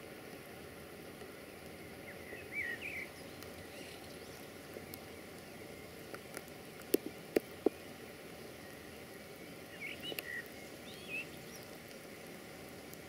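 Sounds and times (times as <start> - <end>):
rain hissing in woods: 0.0 - 13.0
bird chirping: 2.0 - 6.0, 7.5 - 11.8.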